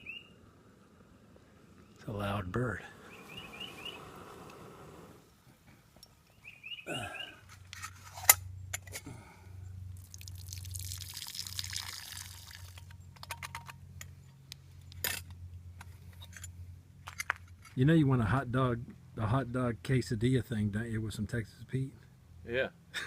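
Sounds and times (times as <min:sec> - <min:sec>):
bird rising chirps: 0:00.0 - 0:00.4, 0:02.9 - 0:05.3, 0:06.3 - 0:07.4
low steady hum: 0:00.0 - 0:23.0
hiss: 0:02.9 - 0:05.3.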